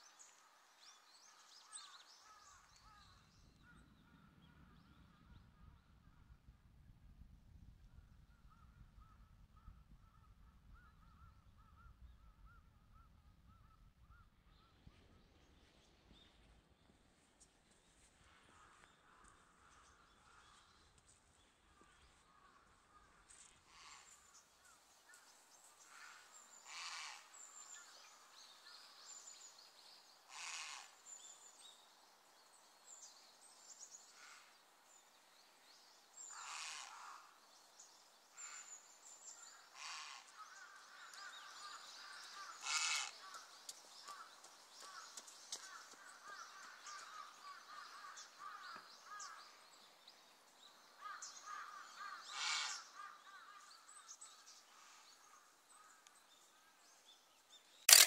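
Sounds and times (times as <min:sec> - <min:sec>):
loud bird calls: 0:26.0 - 0:27.9, 0:30.3 - 0:31.1, 0:36.3 - 0:37.4, 0:39.4 - 0:49.4, 0:51.0 - 0:53.9.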